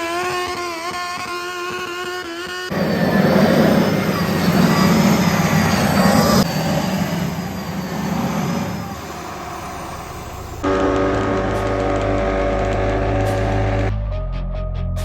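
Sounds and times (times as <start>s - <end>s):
loud engine running hard: 2.7s - 13.9s.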